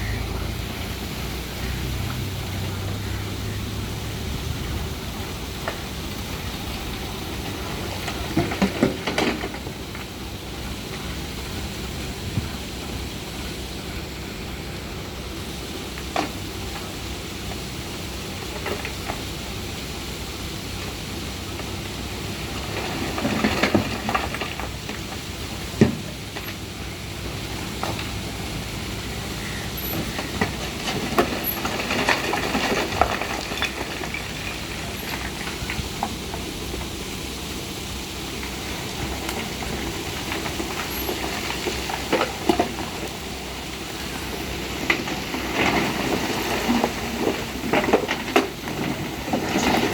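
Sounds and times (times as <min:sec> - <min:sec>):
backhoe diesel engine running: 0:00.0 - 0:49.9
rough scraping and rattling: 0:21.4 - 0:49.9.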